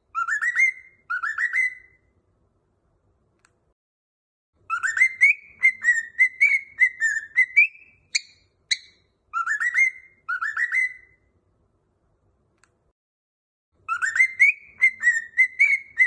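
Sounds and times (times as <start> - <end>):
bird chirps: 0.1 - 2.1, 4.6 - 11.3, 13.8 - 16.0
cockatiel whistling: 0.1 - 2.1, 4.7 - 11.2, 13.9 - 16.0.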